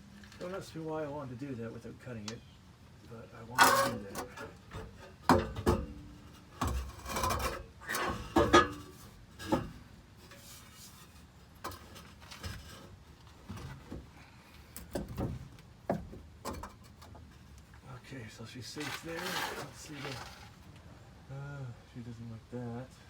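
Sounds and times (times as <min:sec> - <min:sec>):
exhaust pipe scraping and clunking: 0:03.5 - 0:20.7.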